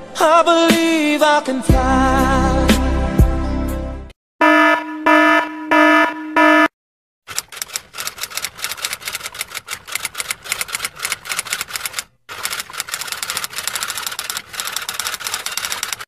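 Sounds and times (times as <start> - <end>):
typewriter keys clacking: 7.3 - 16.0.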